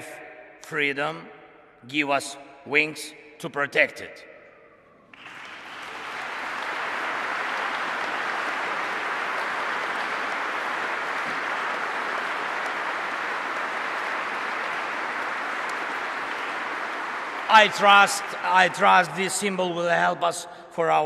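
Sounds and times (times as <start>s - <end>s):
audience applauding: 5.1s - 19.8s.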